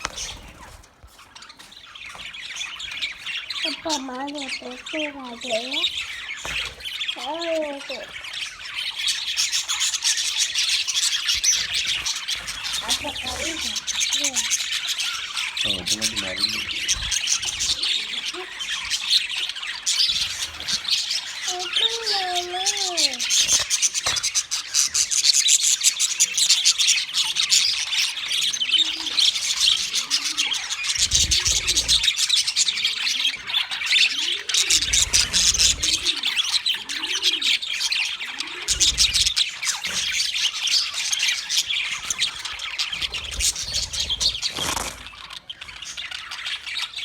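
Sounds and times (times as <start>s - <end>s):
budgerigars chattering: 0.0s - 47.0s
low rising and falling bird call: 10.6s - 23.4s.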